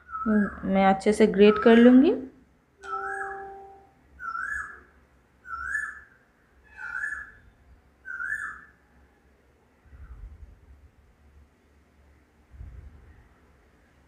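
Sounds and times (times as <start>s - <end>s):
bird calling: 2.9s - 4.9s.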